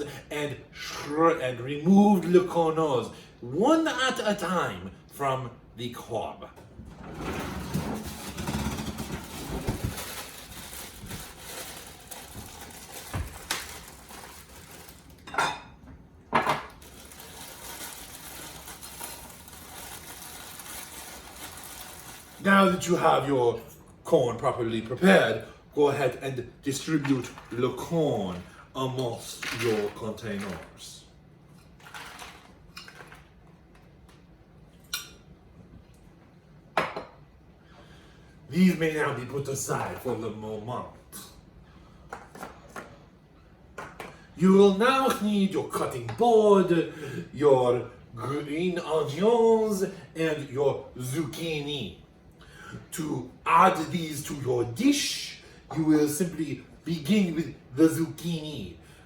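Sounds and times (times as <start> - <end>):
utensil scraping and rustling: 6.9 - 15.2
utensils and dishes clattering: 7.0 - 10.3.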